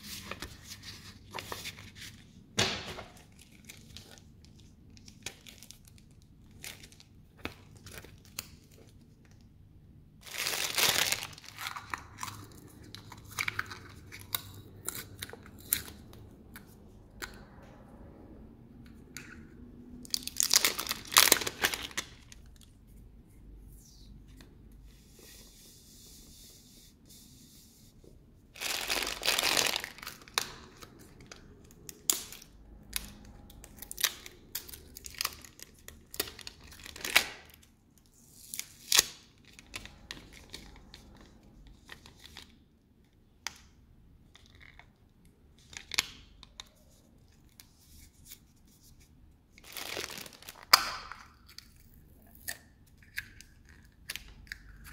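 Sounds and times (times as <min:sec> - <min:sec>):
packaging tearing: 0:10.2 - 0:12.5, 0:20.1 - 0:22.5, 0:28.6 - 0:31.0, 0:32.0 - 0:37.6, 0:49.6 - 0:51.2
packaging rustling and crinkling: 0:10.2 - 0:14.4, 0:20.1 - 0:22.8, 0:28.6 - 0:37.6, 0:49.6 - 0:51.2.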